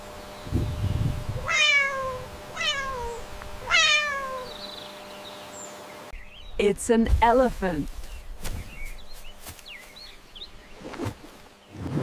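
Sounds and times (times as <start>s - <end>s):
cat meowing: 1.4s - 4.6s.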